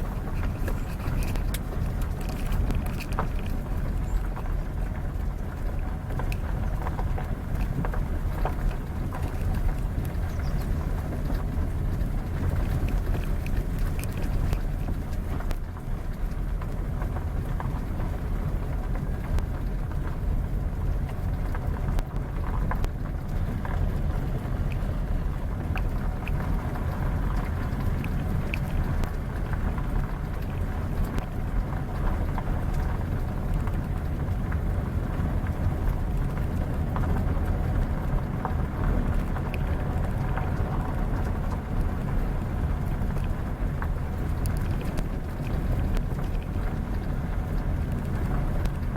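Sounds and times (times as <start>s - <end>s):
vehicle engine and road noise: 0.0s - 48.9s.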